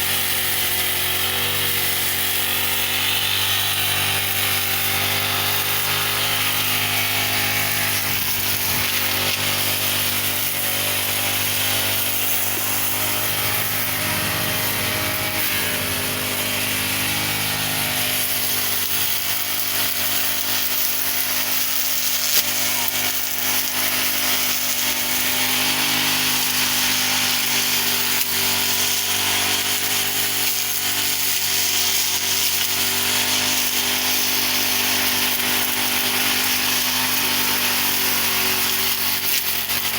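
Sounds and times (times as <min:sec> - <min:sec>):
brush cutter engine trimming grass: 0:00.0 - 0:39.9.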